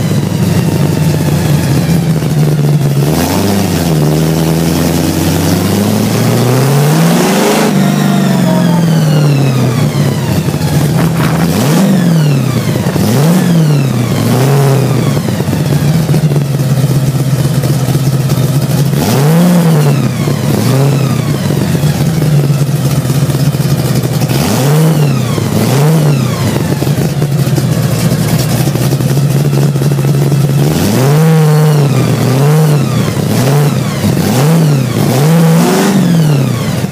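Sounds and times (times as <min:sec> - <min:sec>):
car engine running: 0:00.0 - 0:36.9
engine throttle blips: 0:00.0 - 0:36.9.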